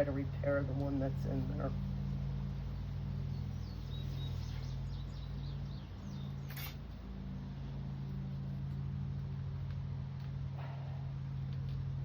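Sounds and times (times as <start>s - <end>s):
low hum: 0.0s - 12.0s
faint bird chirps: 3.3s - 6.8s.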